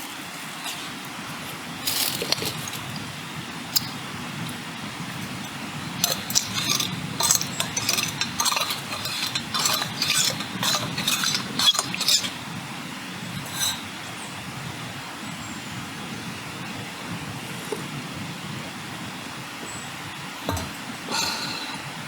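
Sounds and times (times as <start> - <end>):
metal utensils clinking on cookware: 5.1 - 12.6, 13.2 - 14.0, 20.5 - 21.3.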